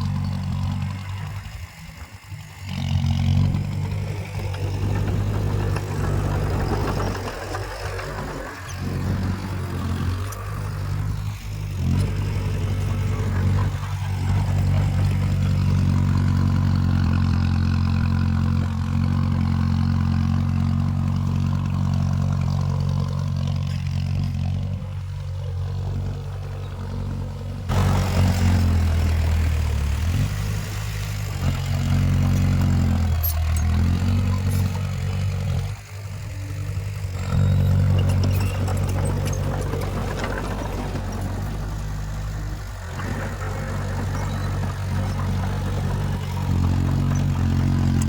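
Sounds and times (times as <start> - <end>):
heavy diesel engine running: 0.0 - 48.0.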